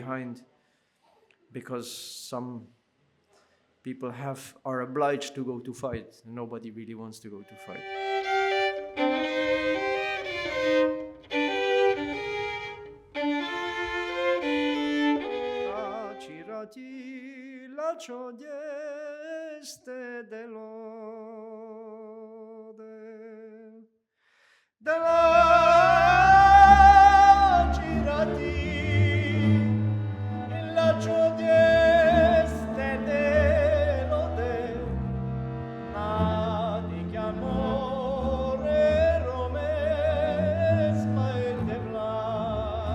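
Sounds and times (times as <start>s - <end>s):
folk violin playing: 7.4s - 16.6s, 25.0s - 42.9s
viola accompaniment: 7.4s - 16.6s, 25.0s - 42.9s
man singing with vibrato: 15.2s - 23.8s, 24.8s - 34.9s, 35.9s - 42.9s
double bass: 25.1s - 42.9s.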